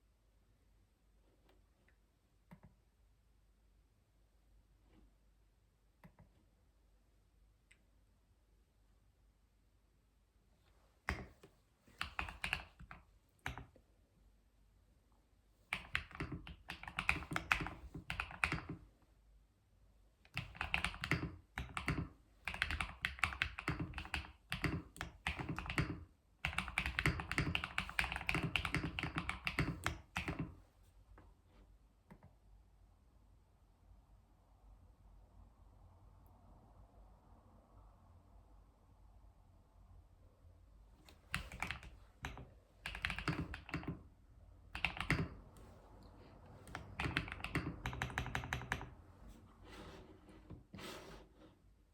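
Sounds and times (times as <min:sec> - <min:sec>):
typing on computer keyboard: 0:11.1 - 0:13.8, 0:15.7 - 0:18.8, 0:20.3 - 0:30.6, 0:41.1 - 0:44.0, 0:44.7 - 0:45.6, 0:46.6 - 0:49.0.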